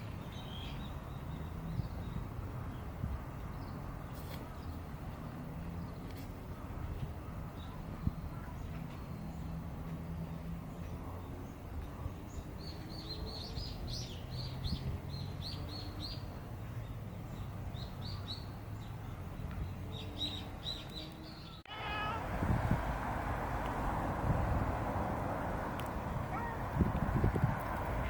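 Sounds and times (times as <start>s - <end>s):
small birds chirping: 10.7s - 22.2s
cat meowing: 21.7s - 22.2s.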